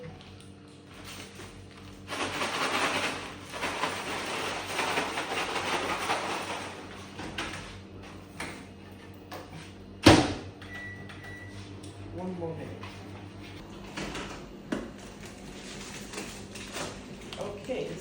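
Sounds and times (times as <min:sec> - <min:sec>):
popcorn bag rustling: 0:00.9 - 0:07.2, 0:14.9 - 0:18.0.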